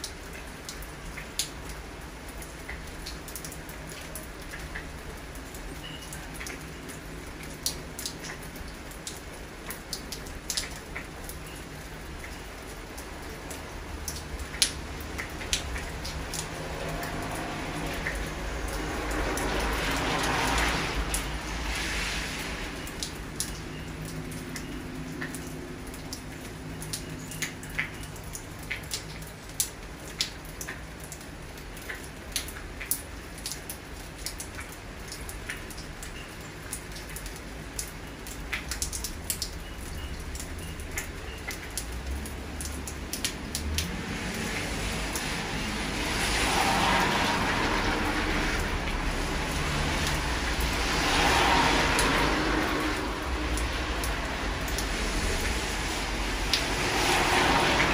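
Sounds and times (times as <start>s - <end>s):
raindrops tapping: 0.0s - 57.9s
steady rain: 0.0s - 57.9s
car tyres hissing on wet road: 16.5s - 23.4s, 43.6s - 57.9s.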